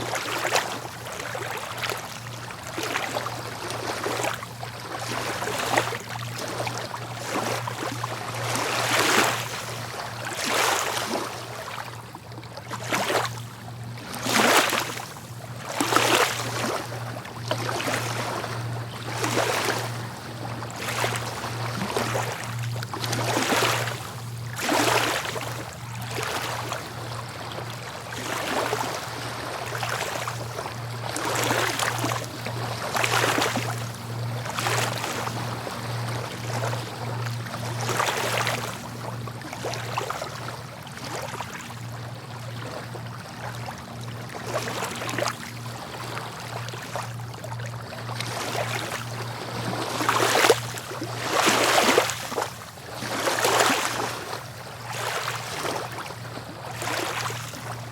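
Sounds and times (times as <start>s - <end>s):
sea waves washing on shore: 12.6s - 41.6s, 42.2s - 57.9s.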